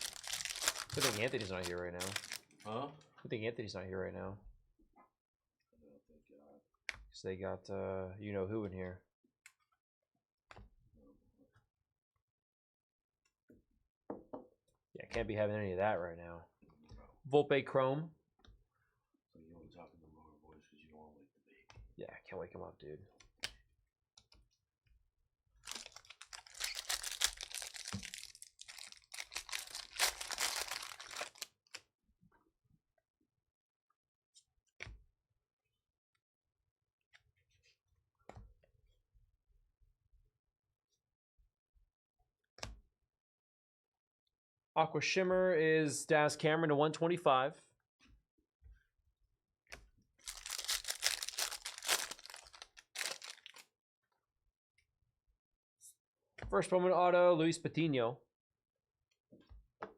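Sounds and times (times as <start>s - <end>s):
foil wrappers crinkling and tearing: 0.0s - 2.7s, 25.6s - 31.6s, 50.2s - 53.6s.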